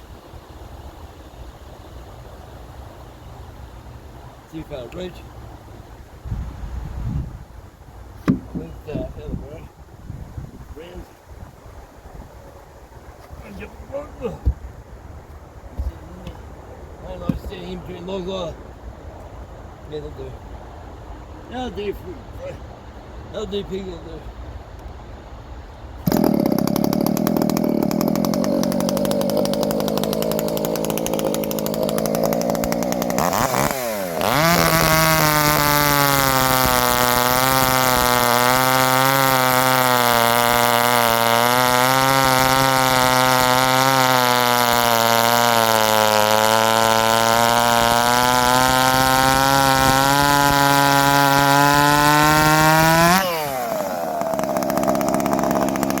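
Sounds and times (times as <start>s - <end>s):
chainsaw cutting through log: 8.2s - 9.0s, 26.0s - 56.0s.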